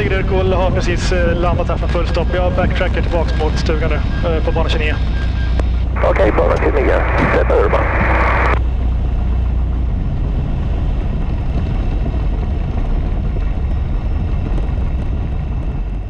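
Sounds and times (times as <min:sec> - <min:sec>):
piston aircraft engine drone: 0:00.0 - 0:16.0
radio transmission: 0:01.9 - 0:08.6.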